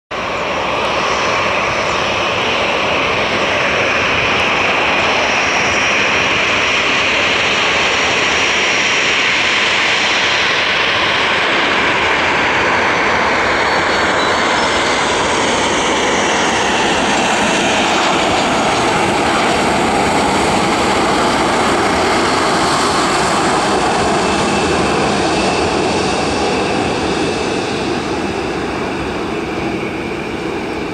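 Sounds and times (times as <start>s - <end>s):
jet engines landing: 0.1s - 30.9s.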